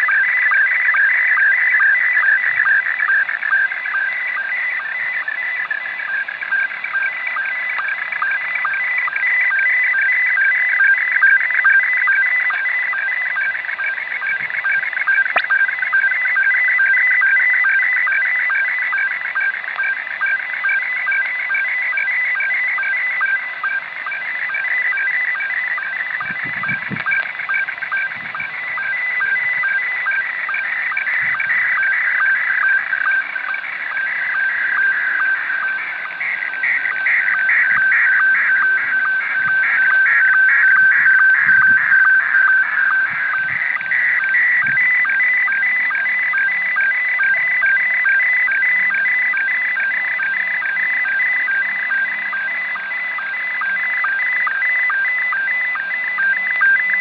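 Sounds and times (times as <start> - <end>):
fast-changing electronic tones: 14.3 - 15.8, 25.7 - 53.4
radio hiss: 25.6 - 53.0.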